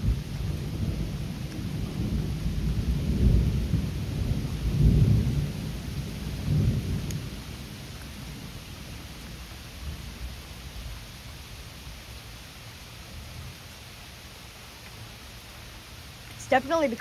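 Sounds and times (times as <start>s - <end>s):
thunder rumbling: 0.0s - 12.4s
steady rain: 0.0s - 17.0s.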